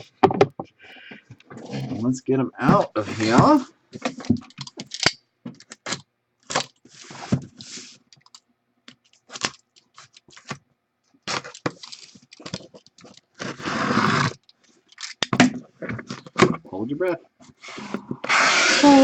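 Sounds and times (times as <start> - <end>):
plastic and cardboard clicks and scrapes: 2.7 - 10.6, 11.2 - 16.7
packaging rustling: 5.6 - 10.6, 11.2 - 15.3.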